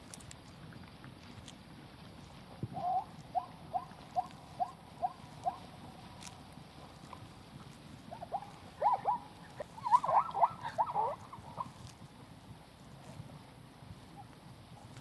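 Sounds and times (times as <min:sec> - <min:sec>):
animal squeaky chirps: 0:08.1 - 0:11.9.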